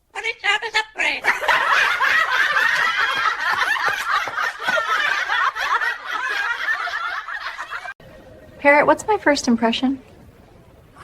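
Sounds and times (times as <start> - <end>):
group of people laughing: 1.2 - 8.0.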